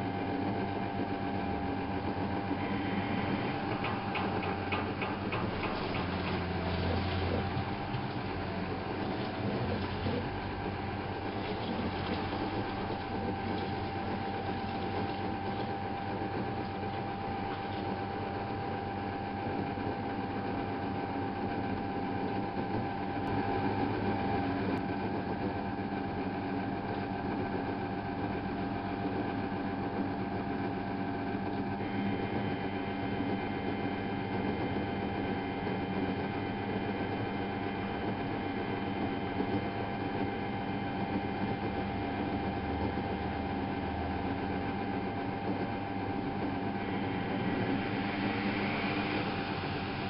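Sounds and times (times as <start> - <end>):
washing machine motor whining: 0.0 - 50.0
higher whine: 46.6 - 50.0.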